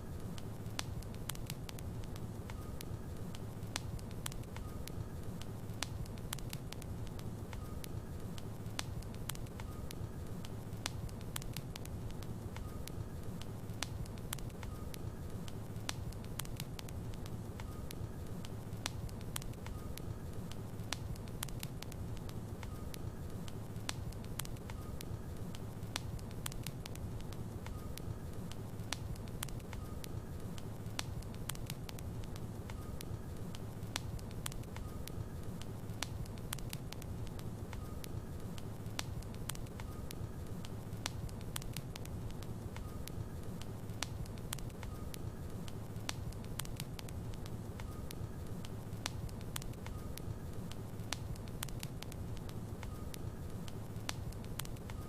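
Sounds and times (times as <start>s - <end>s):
low rumble of flame: 0.0s - 55.0s
logs crackling and popping: 0.1s - 55.0s
faint whistle from fire: 9.4s - 10.4s, 12.6s - 13.2s, 17.5s - 21.6s, 27.7s - 31.7s, 32.3s - 36.8s, 37.4s - 55.0s.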